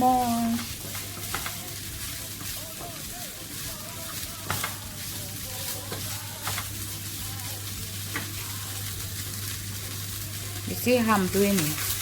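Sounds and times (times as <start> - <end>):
rice sizzling in oil: 0.0 - 12.0
utensil clicking against pan: 0.6 - 1.8, 4.4 - 6.8.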